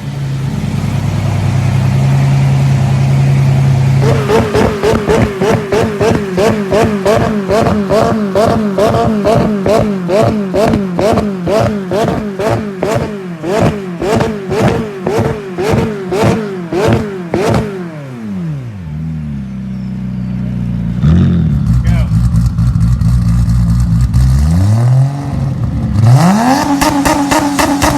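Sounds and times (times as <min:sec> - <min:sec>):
car engine revving: 0:00.0 - 0:27.9
sharp exhaust cracks: 0:00.6 - 0:17.9.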